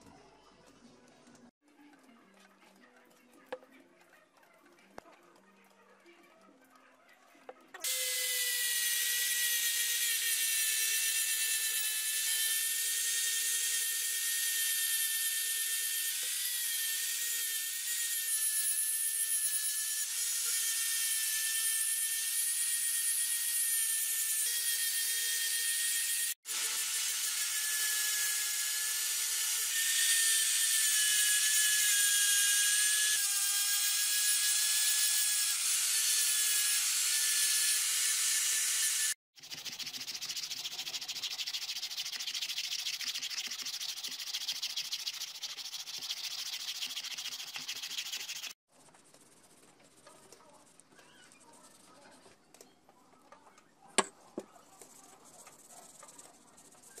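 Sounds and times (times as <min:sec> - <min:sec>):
angle grinder sanding wood: 0:07.8 - 0:48.6
rag rubbing on wood: 0:39.4 - 0:50.1
hand sanding gritty rubbing: 0:39.4 - 0:51.9.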